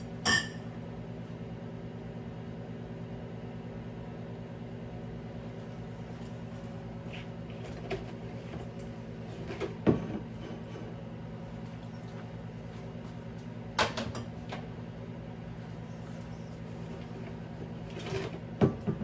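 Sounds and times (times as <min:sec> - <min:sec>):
steady low hum: 0:00.0 - 0:19.0
items knocking in refrigerator: 0:09.5 - 0:10.4, 0:18.1 - 0:19.0.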